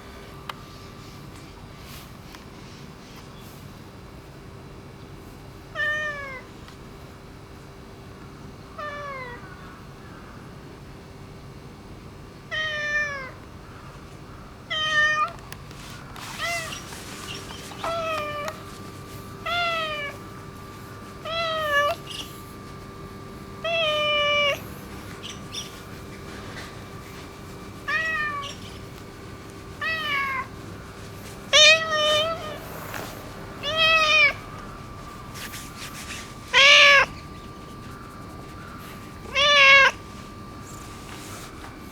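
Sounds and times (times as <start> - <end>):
cat meowing: 16.4 - 18.5, 19.4 - 20.2, 21.2 - 22.3, 23.6 - 25.9, 27.8 - 28.9, 29.8 - 30.5, 31.5 - 32.7, 33.6 - 34.4, 36.5 - 37.5, 39.2 - 40.0.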